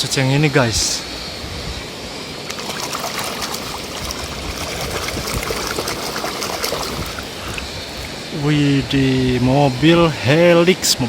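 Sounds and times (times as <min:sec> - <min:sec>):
water trickling and splashing: 0:02.4 - 0:08.3.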